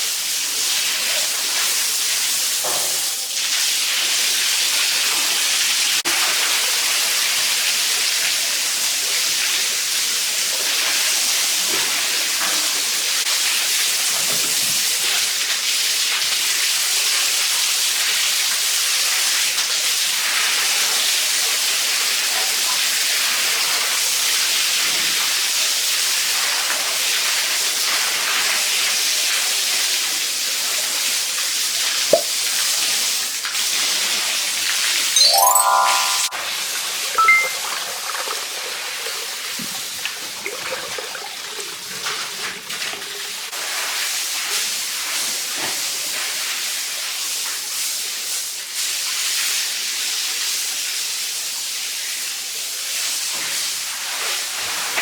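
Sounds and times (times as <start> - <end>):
short sharp high sound: 35.2 - 36.4.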